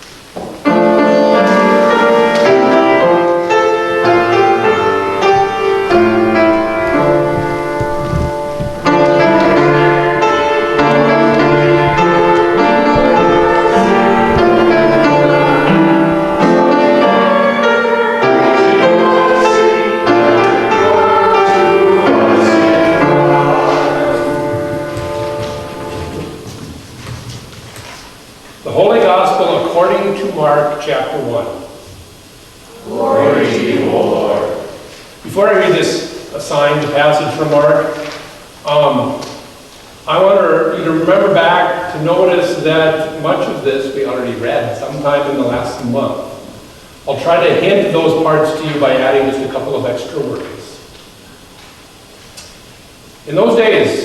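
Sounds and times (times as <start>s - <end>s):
piano playing hymn chords: 0.0s - 27.4s, 32.6s - 38.2s.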